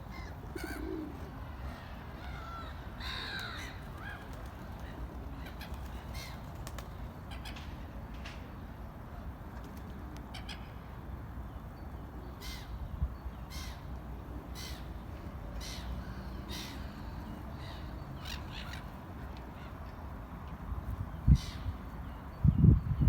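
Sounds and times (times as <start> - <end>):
birds cawing: 0.1 - 6.5, 12.4 - 12.8, 13.5 - 14.0, 15.6 - 19.8.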